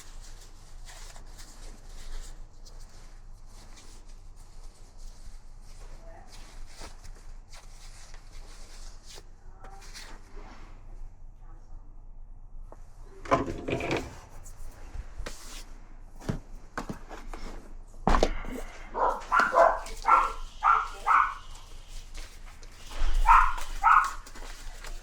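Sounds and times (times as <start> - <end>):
dog barking: 18.9 - 21.7, 22.9 - 24.4.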